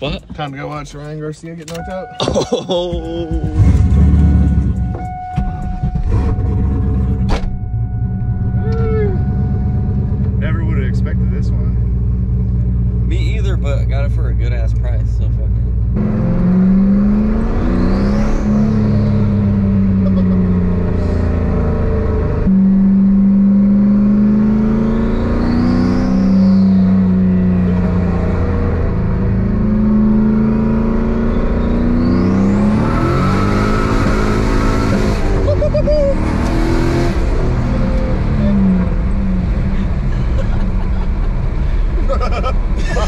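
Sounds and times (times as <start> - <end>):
car engine accelerating hard: 0.0 - 43.0
turbo whistling: 1.7 - 11.3, 25.0 - 27.4, 31.0 - 34.1, 35.2 - 36.6.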